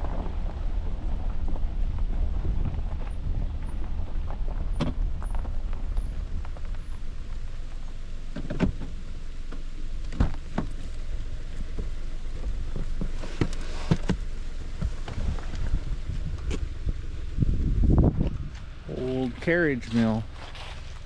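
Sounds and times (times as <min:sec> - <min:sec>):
wind on microphone: 0:00.0 - 0:06.6, 0:14.8 - 0:18.9.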